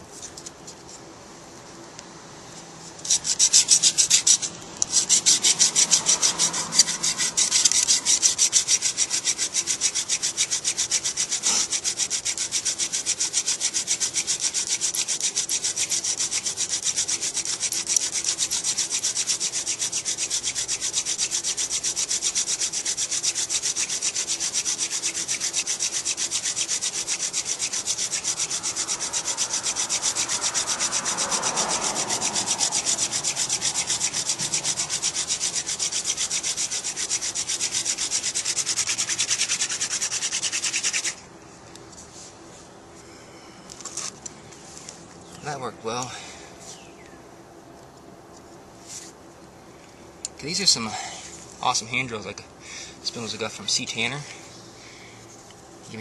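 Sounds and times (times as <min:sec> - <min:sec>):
wood rubbing on wood: 0:02.9 - 0:41.2.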